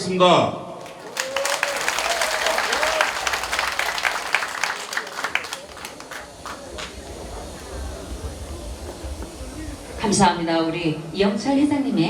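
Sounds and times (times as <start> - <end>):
audience applauding: 0.8 - 10.1.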